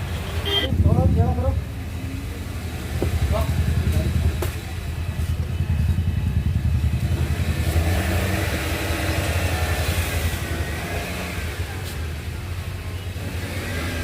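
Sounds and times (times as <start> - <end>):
motorcycle engine thumping: 2.8 - 7.4.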